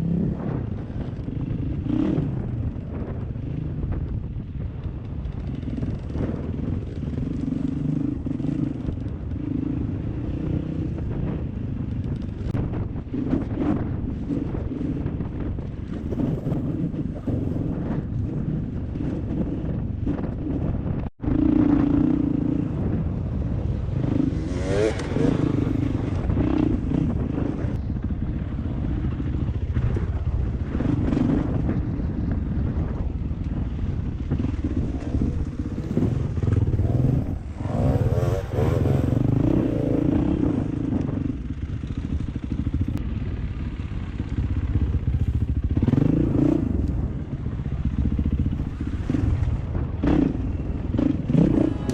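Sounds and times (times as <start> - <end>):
dirt bike engine revving: 21.2 - 27.7, 33.6 - 43.0, 45.1 - 51.9.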